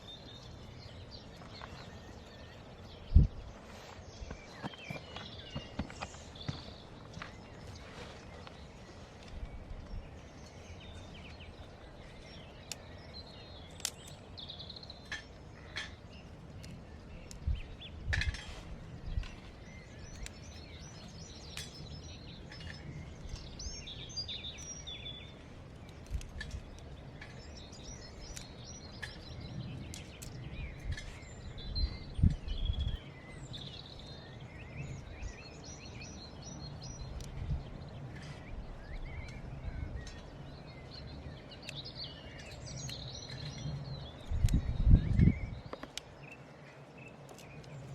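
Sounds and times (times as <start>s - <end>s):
birds singing and chirping: 0.0s - 47.9s.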